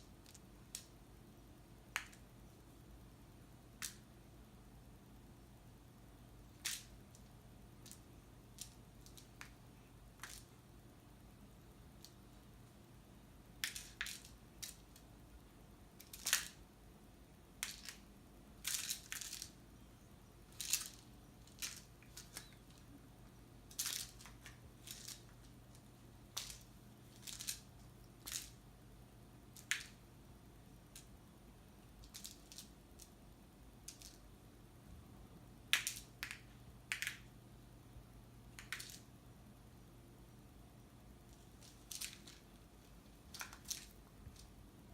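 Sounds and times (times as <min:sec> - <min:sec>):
toy mouse scuffing and rustling: 0:17.6 - 0:28.6, 0:41.3 - 0:44.6.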